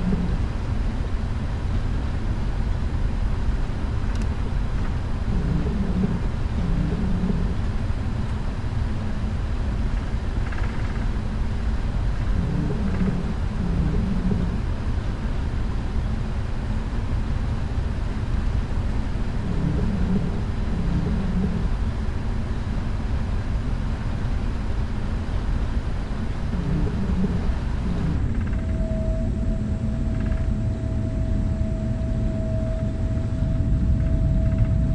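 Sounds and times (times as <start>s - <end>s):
aircraft cabin rumble: 0.0s - 28.7s
faint muffled sounds: 4.2s - 11.1s, 11.8s - 28.2s.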